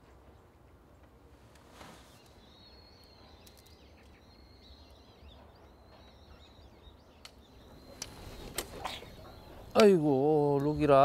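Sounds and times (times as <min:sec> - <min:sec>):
small birds twittering: 0:00.0 - 0:11.0.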